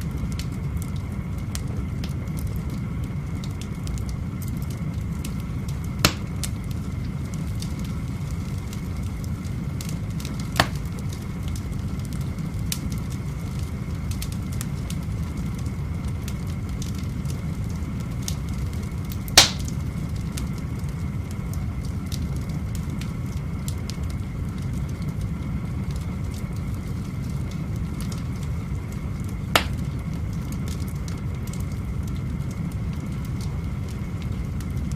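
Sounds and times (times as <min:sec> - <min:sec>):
small fire crackles: 0:00.0 - 0:34.9
wood fire burning: 0:00.0 - 0:34.9
sharp loud pops: 0:06.1 - 0:06.4, 0:19.4 - 0:19.7, 0:29.6 - 0:29.8.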